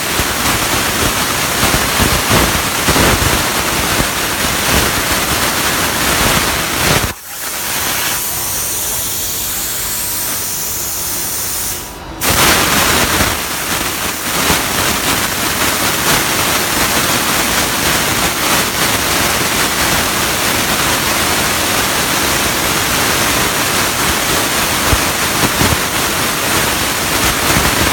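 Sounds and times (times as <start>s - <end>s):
plasma cutter hissing: 5.8s - 15.3s.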